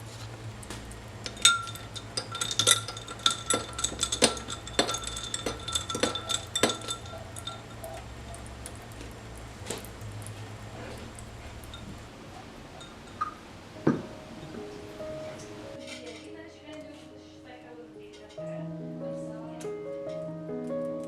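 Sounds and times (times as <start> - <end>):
utensil clinking against a bowl: 0.6 - 14.0.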